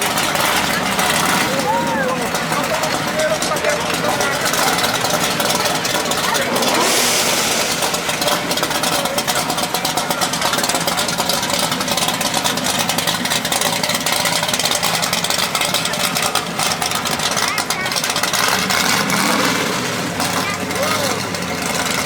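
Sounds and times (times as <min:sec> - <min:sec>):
car engines revving: 0:00.0 - 0:22.0
crowd chatter: 0:00.0 - 0:22.0.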